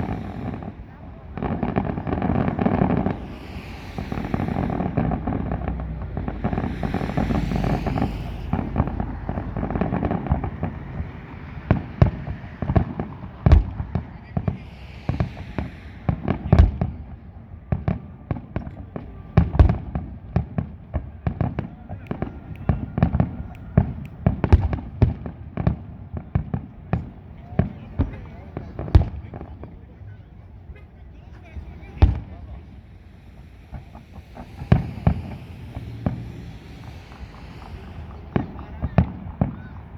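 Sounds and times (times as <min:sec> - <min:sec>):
fireworks crackling: 0:00.0 - 0:17.8, 0:31.2 - 0:39.9
sharp fireworks bangs: 0:00.0 - 0:29.3, 0:31.4 - 0:39.9
rumble of fireworks bursts: 0:00.0 - 0:39.9.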